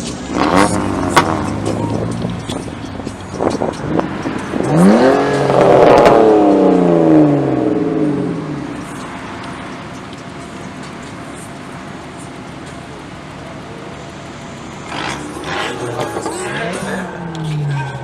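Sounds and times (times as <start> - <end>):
car engine revving past: 3.4 - 8.8, 14.8 - 18.0.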